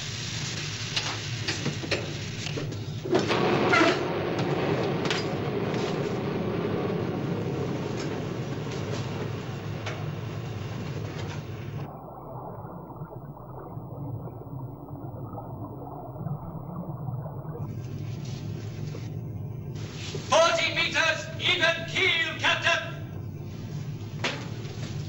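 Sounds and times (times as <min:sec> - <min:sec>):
low rumble of machinery: 0:00.9 - 0:25.0
rush of noise: 0:03.0 - 0:14.4.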